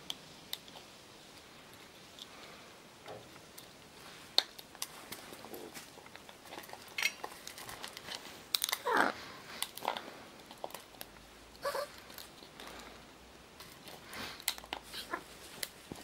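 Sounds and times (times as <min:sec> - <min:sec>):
parrot throaty call: 0:11.6 - 0:11.9.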